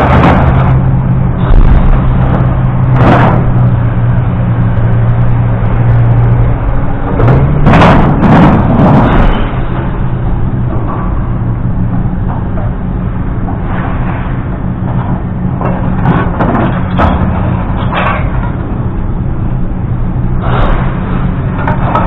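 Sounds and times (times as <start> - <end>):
loud noisy bursts: 0.0 - 12.2, 19.4 - 22.0
vehicle engine running: 0.0 - 22.0.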